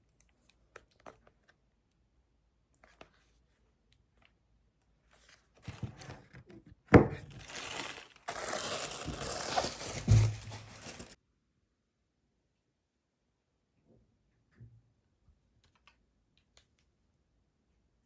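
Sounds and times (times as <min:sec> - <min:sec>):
wrapping material rustling: 0:07.3 - 0:11.2.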